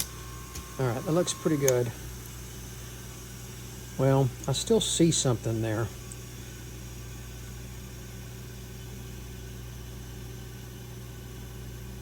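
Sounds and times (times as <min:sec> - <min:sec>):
sharpener motor humming: 0:00.0 - 0:06.6.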